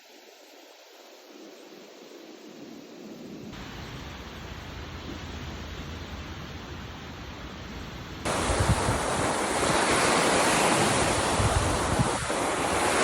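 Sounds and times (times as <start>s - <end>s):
sea surf washing onto shore: 3.6s - 13.0s
wind buffeting microphone: 4.0s - 13.0s.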